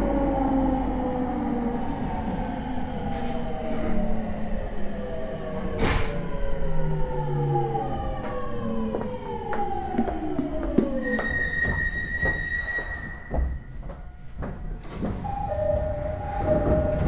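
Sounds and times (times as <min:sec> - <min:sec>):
train inverter whine: 0:07.5 - 0:17.0
steady two-note tone: 0:15.3 - 0:17.0.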